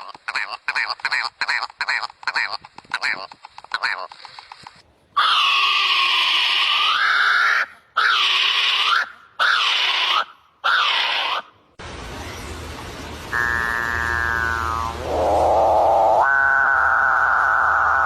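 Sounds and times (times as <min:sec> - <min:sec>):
swooping animal calls: 0:05.2 - 0:11.5, 0:13.3 - 0:18.0.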